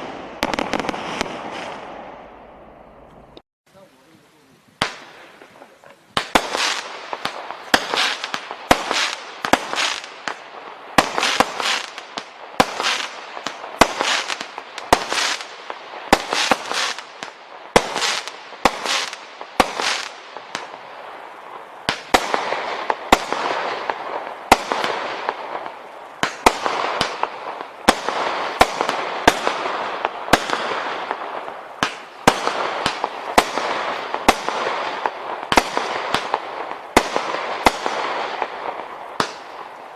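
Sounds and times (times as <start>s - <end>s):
firework bangs: 0.0s - 3.4s, 4.8s - 39.9s.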